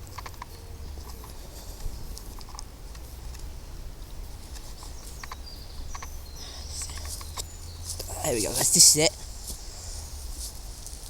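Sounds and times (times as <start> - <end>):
footsteps on woodland path: 4.3 - 11.0.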